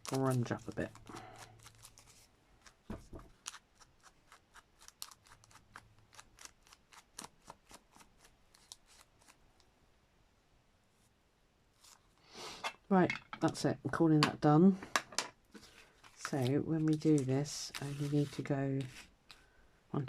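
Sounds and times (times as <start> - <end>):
scratchy ticks and snips on paper: 0.0 - 9.4.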